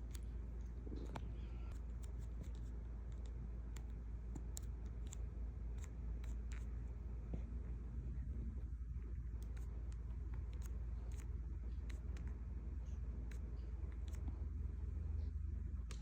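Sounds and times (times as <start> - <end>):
low rumble: 7.4 - 10.3.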